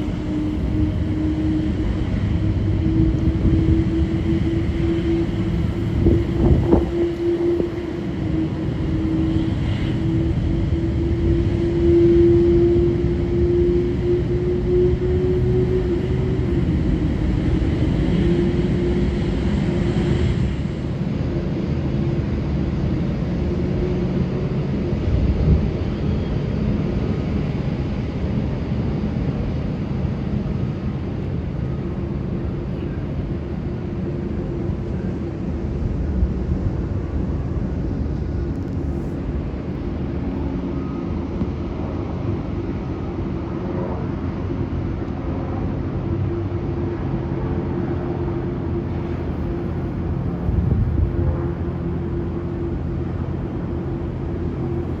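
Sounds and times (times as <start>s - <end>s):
jet engines rumbling: 0.0s - 55.0s.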